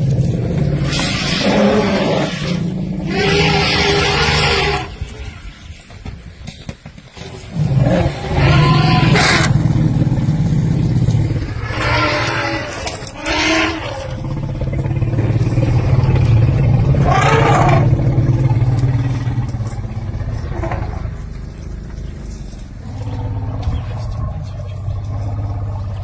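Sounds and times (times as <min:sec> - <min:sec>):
engine idling: 0:08.6 - 0:26.0.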